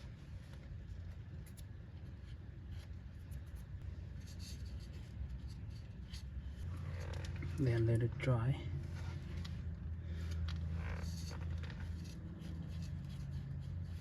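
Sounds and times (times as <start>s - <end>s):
steady low hum: 0.0s - 14.0s
scratching and rubbing strokes: 1.0s - 7.6s, 10.6s - 14.0s.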